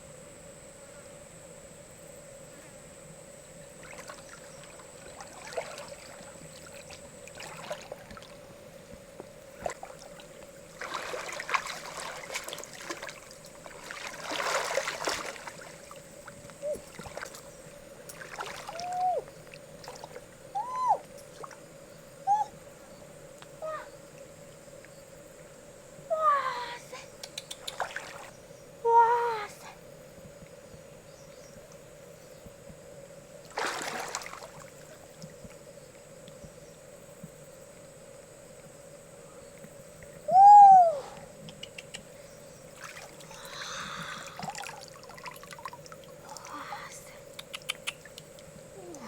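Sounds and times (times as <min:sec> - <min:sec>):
faint hum: 0:00.0 - 0:49.0
river water splashing: 0:03.8 - 0:08.6, 0:09.5 - 0:20.5, 0:21.2 - 0:21.7, 0:27.6 - 0:28.4, 0:33.4 - 0:35.4, 0:42.6 - 0:47.0.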